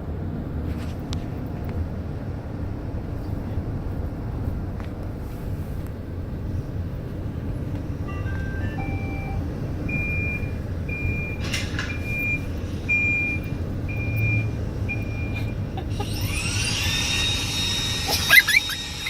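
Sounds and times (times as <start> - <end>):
low motor hum: 0.0 - 19.0
rising electronic tones: 8.1 - 11.2
robot vacuum high beep: 8.1 - 11.4, 12.0 - 19.0.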